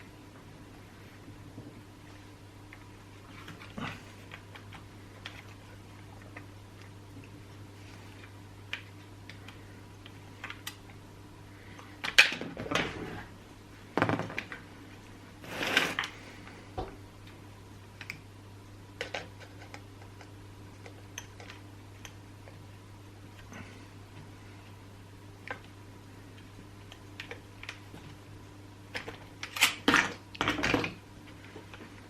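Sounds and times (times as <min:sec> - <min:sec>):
steady low hum: 0:00.0 - 0:32.0
short scrape: 0:15.4 - 0:16.0.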